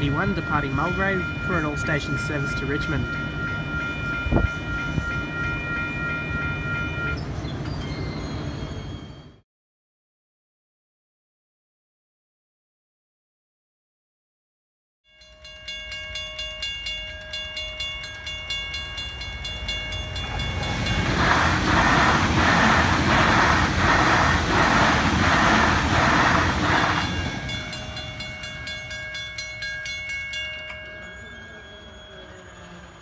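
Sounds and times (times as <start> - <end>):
level crossing bells ringing: 0.0 - 7.2, 15.1 - 21.6, 26.6 - 32.8
electric train wheels clacking: 15.9 - 32.9.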